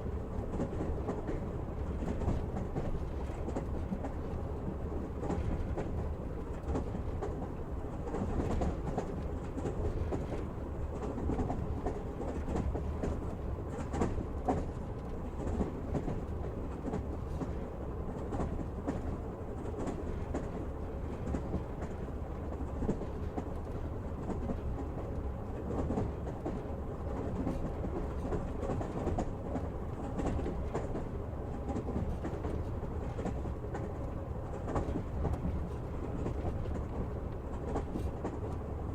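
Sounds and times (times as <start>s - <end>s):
rail joint clicks and knocks: 0.0s - 38.9s
train wheels rumbling on rails: 0.0s - 38.9s.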